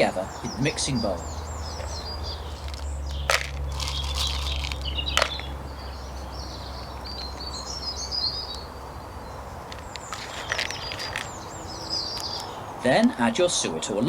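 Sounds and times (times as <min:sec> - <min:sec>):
small birds chirping: 0:00.0 - 0:14.0
dry ingredients rustling: 0:01.7 - 0:05.6, 0:09.7 - 0:12.6.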